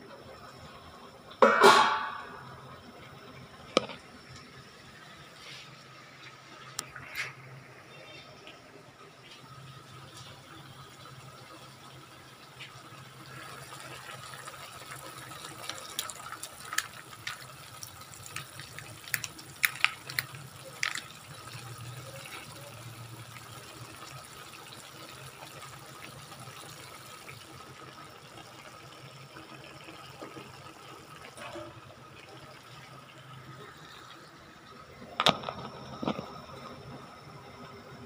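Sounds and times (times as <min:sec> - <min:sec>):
chicken and vegetables sizzling in a pan: 0:09.4 - 0:34.9
sharp crackles and clicks: 0:18.3 - 0:21.1.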